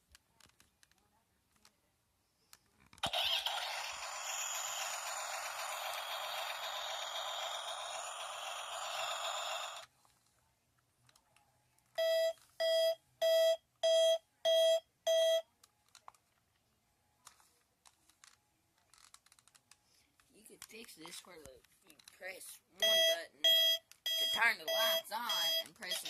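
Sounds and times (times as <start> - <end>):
electronic beeps: 22.8 - 26.0.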